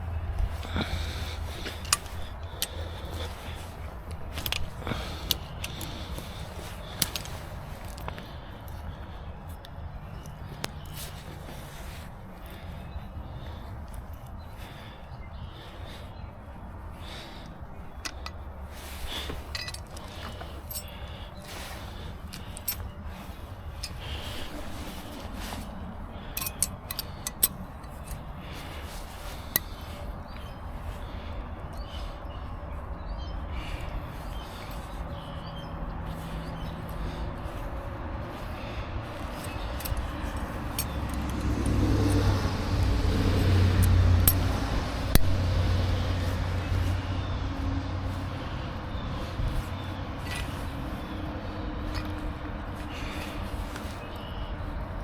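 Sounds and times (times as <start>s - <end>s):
steady low rumble: 0.0s - 53.6s
metallic clinks of hand tools: 19.4s - 21.0s, 22.3s - 23.0s, 26.3s - 28.2s, 39.2s - 45.4s.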